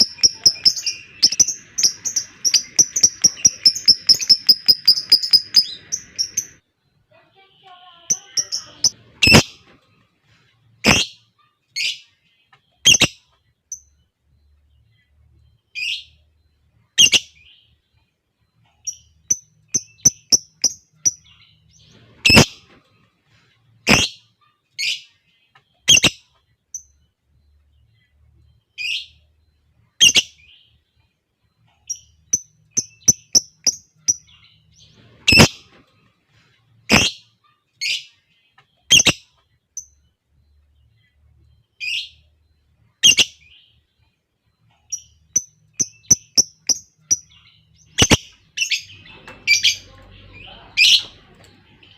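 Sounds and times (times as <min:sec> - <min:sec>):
lovebirds calling shrilly: 0:00.0 - 0:06.6, 0:08.1 - 0:09.8, 0:10.8 - 0:12.1, 0:12.8 - 0:13.9, 0:17.0 - 0:17.6, 0:18.7 - 0:22.8, 0:23.8 - 0:25.1, 0:25.8 - 0:26.9, 0:30.0 - 0:30.7, 0:31.8 - 0:35.8, 0:36.8 - 0:38.2, 0:38.8 - 0:40.0, 0:43.0 - 0:43.7, 0:44.8 - 0:51.9
rapid repeated bird chirps: 0:00.0 - 0:51.9.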